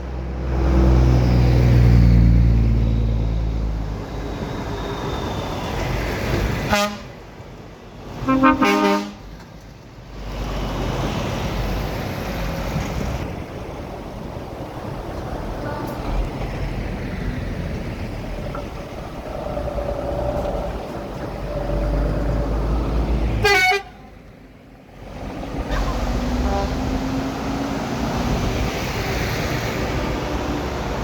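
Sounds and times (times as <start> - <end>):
truck engines rumbling: 0.0 - 31.0
truck air horns sounding: 6.6 - 7.2, 8.2 - 9.3, 23.4 - 24.2, 25.7 - 27.2.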